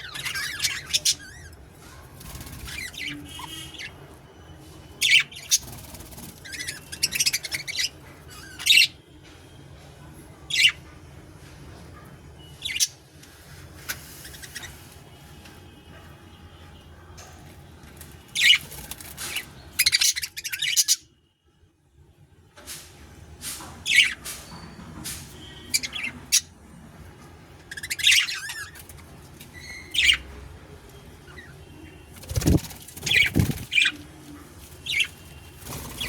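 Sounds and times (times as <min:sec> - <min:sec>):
budgerigars chirping and squawking: 0:00.0 - 0:01.6, 0:02.2 - 0:04.0, 0:05.0 - 0:09.0, 0:14.2 - 0:15.0, 0:18.3 - 0:21.0, 0:23.8 - 0:24.4, 0:25.6 - 0:26.6, 0:27.6 - 0:30.3, 0:31.3 - 0:34.0, 0:34.8 - 0:36.0
budgerigars warbling chatter: 0:32.2 - 0:34.0.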